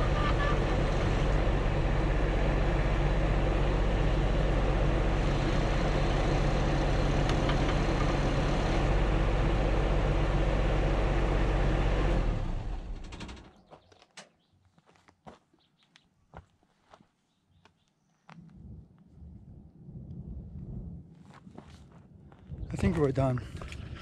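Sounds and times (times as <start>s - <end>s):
excavator engine running: 0.0s - 13.7s.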